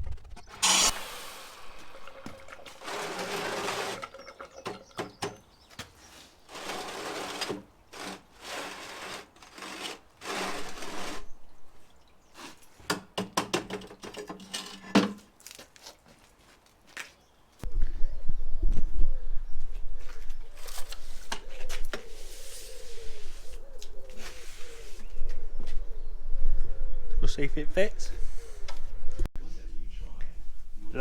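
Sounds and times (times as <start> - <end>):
rubbing and scraping on hard surface: 20.6 - 25.1.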